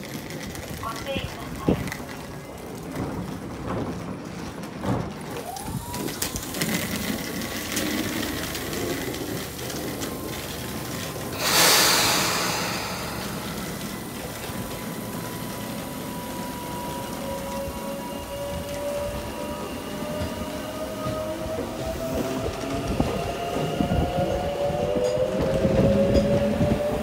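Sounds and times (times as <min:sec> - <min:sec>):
train doors shutting: 0:09.9 - 0:27.0
compressed air hiss: 0:11.4 - 0:14.4.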